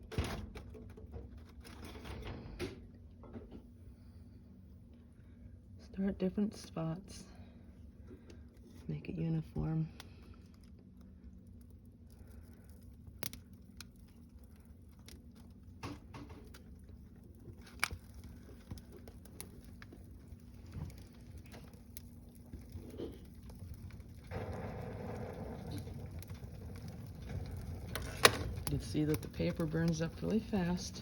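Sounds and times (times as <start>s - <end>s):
faint steady hum: 0.0s - 31.0s
fire crackling and popping: 5.2s - 31.0s.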